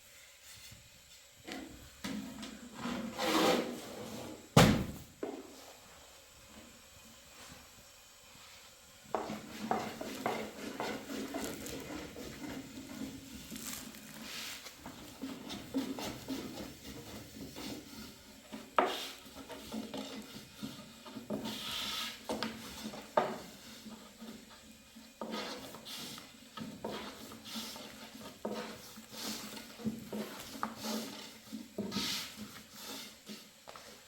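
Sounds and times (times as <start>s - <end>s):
scraping and rubbing: 9.2s - 23.0s.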